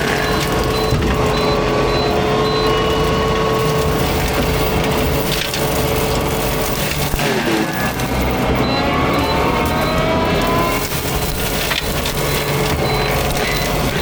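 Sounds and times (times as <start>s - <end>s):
mulcher machine droning and whining: 0.0s - 14.0s
wood crushing and splintering: 0.0s - 14.0s.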